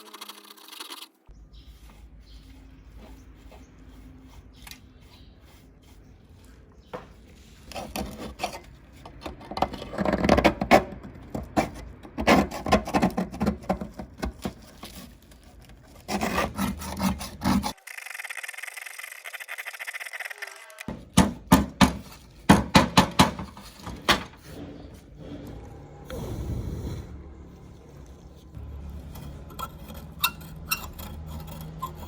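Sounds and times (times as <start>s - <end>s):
hand sanding rusty metal: 1.6s - 6.4s, 16.0s - 17.8s.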